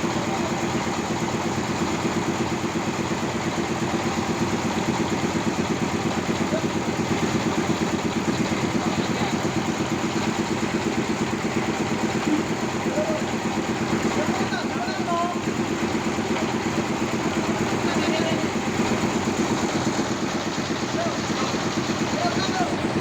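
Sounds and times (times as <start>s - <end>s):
sawmill engine running: 0.0s - 23.0s.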